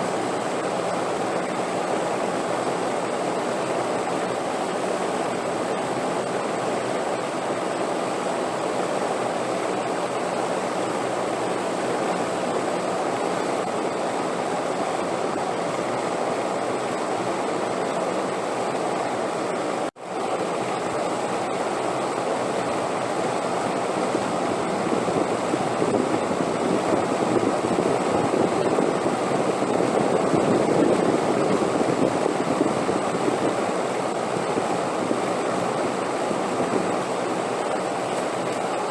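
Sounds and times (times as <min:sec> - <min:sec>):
steady wind rushing: 0:22.4 - 0:38.0.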